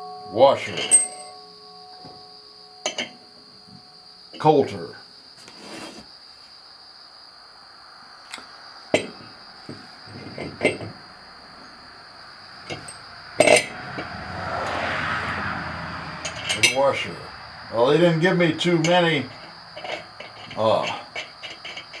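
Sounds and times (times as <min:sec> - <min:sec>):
metal parts clinking and clanking: 0:00.6 - 0:01.4, 0:02.8 - 0:03.2, 0:10.2 - 0:11.0, 0:12.6 - 0:14.1, 0:16.2 - 0:16.8, 0:18.8 - 0:22.0.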